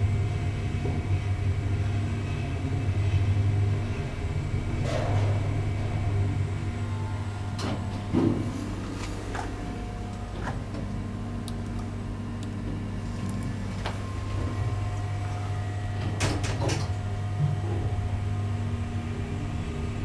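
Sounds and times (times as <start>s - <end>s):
elevator running with low hum: 0.0s - 20.0s
elevator clicks and knocks: 16.0s - 17.6s.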